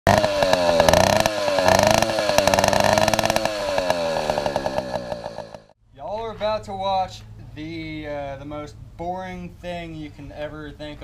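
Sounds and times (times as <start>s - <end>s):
small engine revving: 0.1s - 5.8s.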